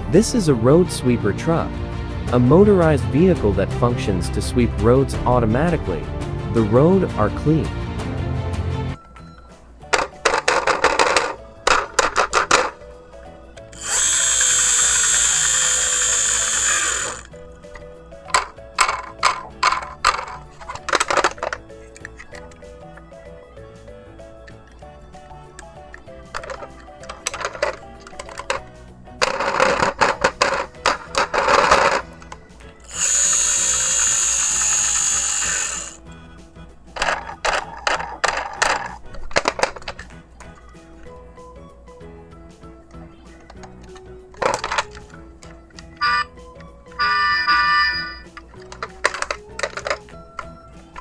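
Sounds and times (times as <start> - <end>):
background music: 0.0 - 51.0
plastic clicks and rattles: 10.0 - 12.8, 13.6 - 22.6, 25.6 - 36.0, 37.0 - 40.6, 43.4 - 46.2, 47.0 - 51.0
drill-like whir: 13.7 - 17.3, 32.8 - 36.0, 46.0 - 46.3, 47.0 - 48.3.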